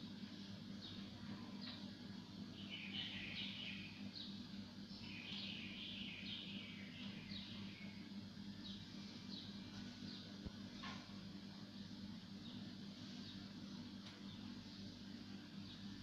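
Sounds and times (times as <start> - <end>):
faint low hum: 0.0 - 16.0
birds chirping: 0.7 - 10.7.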